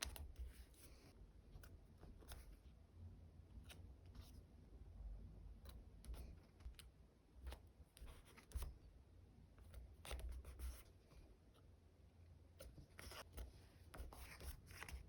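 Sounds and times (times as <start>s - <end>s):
paper and stickers handled: 0.0s - 2.7s, 12.6s - 15.0s.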